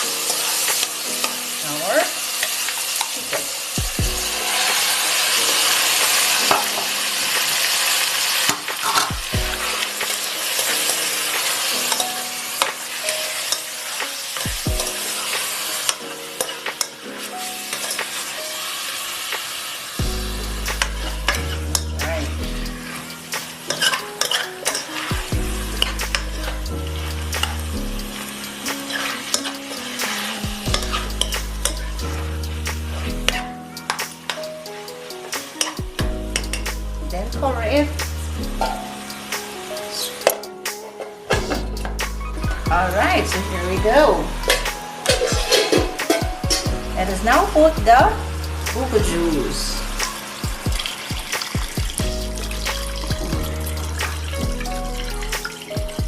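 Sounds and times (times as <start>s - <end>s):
chicken sizzling in hot oil: 0.0s - 56.0s
background music with bass line: 3.8s - 4.6s, 9.1s - 9.8s, 20.0s - 23.6s, 25.1s - 28.9s, 29.8s - 34.2s, 35.8s - 39.9s, 41.3s - 56.0s.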